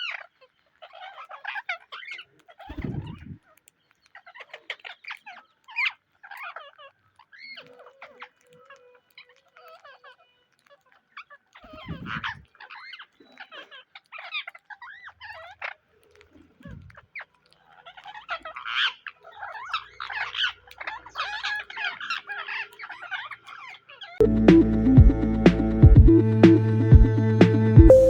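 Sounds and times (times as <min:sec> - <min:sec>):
parrots chirping and chattering: 0:00.0 - 0:24.2
music: 0:24.2 - 0:28.0.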